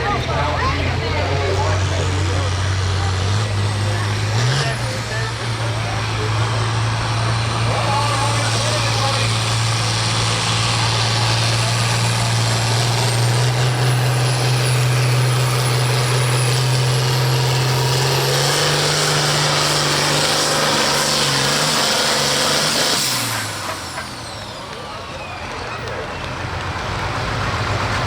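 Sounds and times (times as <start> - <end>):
tractor engine at full throttle: 0.0 - 28.0.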